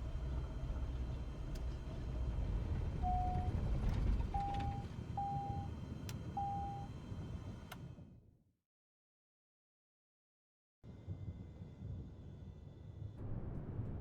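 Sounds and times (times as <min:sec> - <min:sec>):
aircraft engine and airflow rumble: 0:00.0 - 0:07.9
short electronic beeps: 0:03.0 - 0:03.5, 0:04.4 - 0:05.7.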